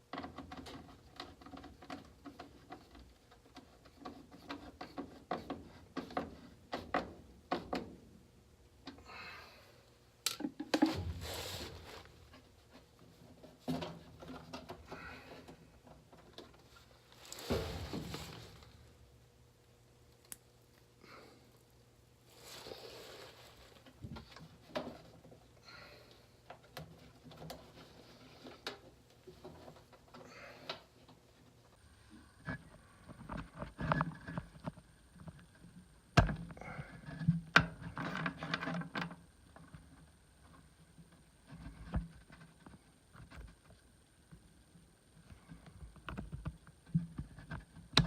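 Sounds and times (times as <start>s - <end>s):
rustling and scraping: 0.0s - 7.9s, 10.6s - 19.1s, 22.2s - 25.6s, 26.2s - 44.0s.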